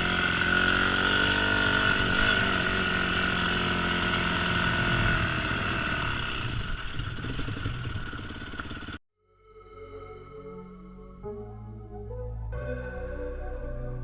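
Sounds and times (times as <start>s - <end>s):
dirt-bike engine revving: 0.0s - 9.0s.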